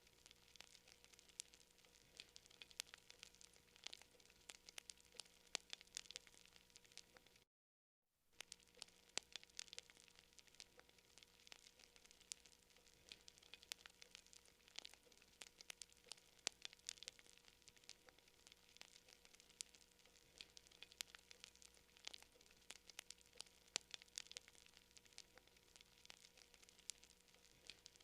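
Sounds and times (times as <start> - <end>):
wood fire crackling and popping: 0.0 - 7.4, 8.4 - 28.0.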